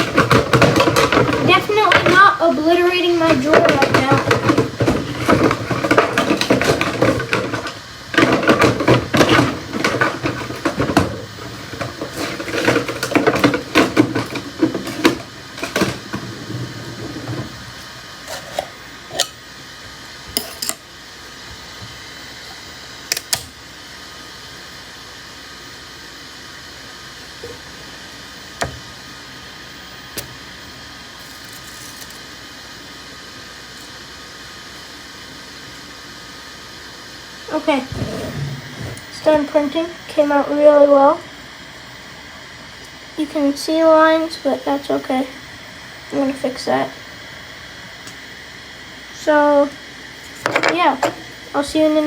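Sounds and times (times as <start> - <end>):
fan hum: 0.0 - 52.0
objects rattling in drawer: 3.2 - 17.6.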